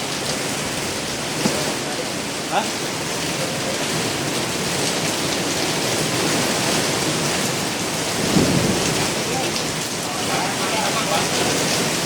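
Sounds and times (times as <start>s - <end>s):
strong wind blowing: 8.1s - 12.0s.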